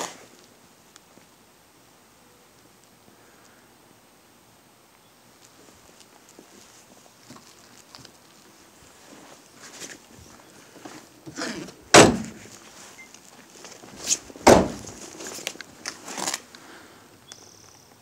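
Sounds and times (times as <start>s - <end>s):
knocks and thumps: 14.4s - 15.0s.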